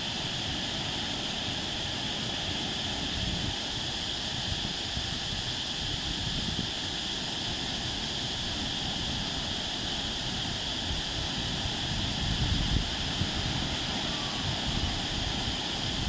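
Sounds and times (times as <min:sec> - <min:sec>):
sea surf: 0:08.5 - 0:16.0
wind buffeting microphone: 0:10.9 - 0:16.0.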